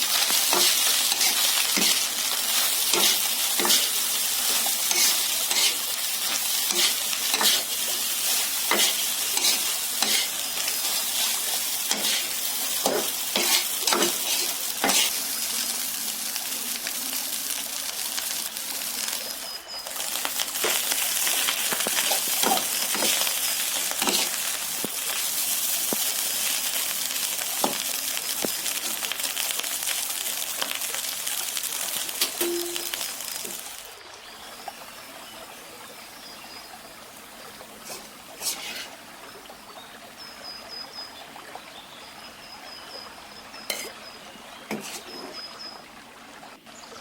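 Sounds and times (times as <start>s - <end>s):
rice sizzling in a pan: 0.0s - 46.5s
spatula scraping and knocking pan: 0.1s - 15.2s, 24.0s - 24.4s, 43.7s - 44.0s, 44.7s - 45.3s.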